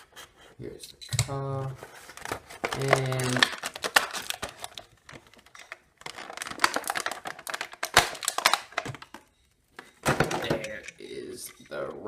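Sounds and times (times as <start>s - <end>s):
plastic packaging rustling: 1.6s - 11.2s.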